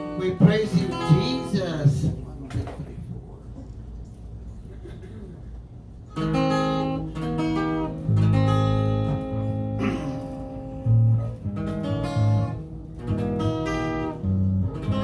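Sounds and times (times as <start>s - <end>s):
acoustic guitar strumming chords: 0.0s - 2.0s, 6.1s - 15.0s.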